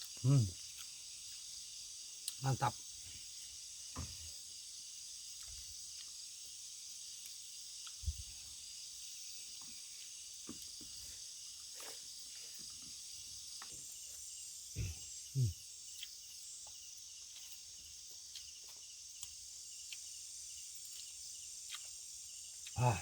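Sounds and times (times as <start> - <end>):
crickets and insects chirping: 0.0 - 23.0
soft low thumps: 14.8 - 15.5.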